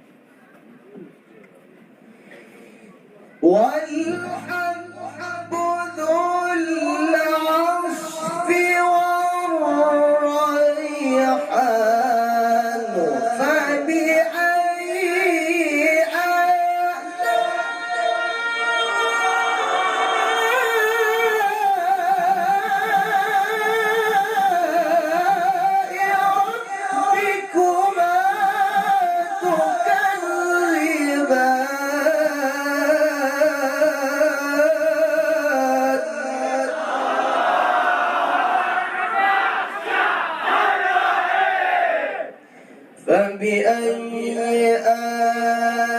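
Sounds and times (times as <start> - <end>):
man chanting recitation: 3.4 - 36.9, 43.0 - 45.9
audience shouting: 36.8 - 42.3.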